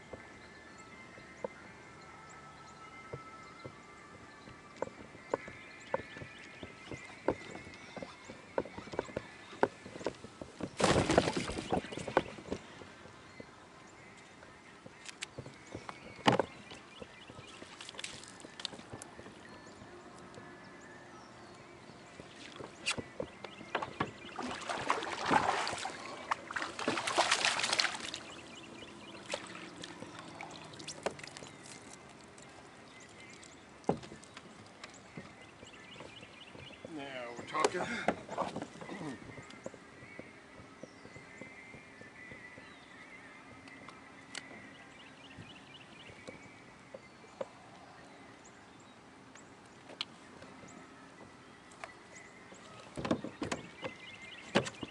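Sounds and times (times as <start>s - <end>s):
lake ambience: 0.0s - 54.9s
water splashing around kayak: 6.9s - 13.0s, 22.2s - 34.4s.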